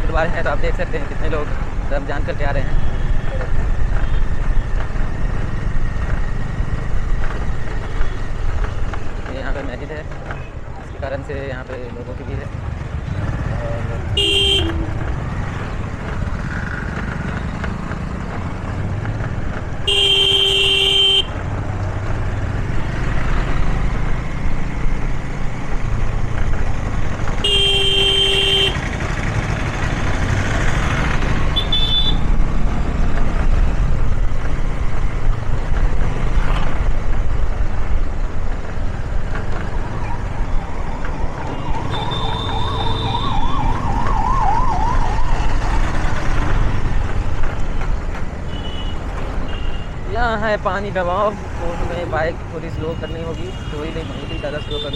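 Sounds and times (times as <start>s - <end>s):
motorbike engine: 12.5s - 50.0s
vehicle horns honking: 14.1s - 15.0s, 19.8s - 21.4s, 27.3s - 29.0s, 31.5s - 32.3s, 41.5s - 43.2s, 48.5s - 49.9s
warbling siren: 40.0s - 46.0s.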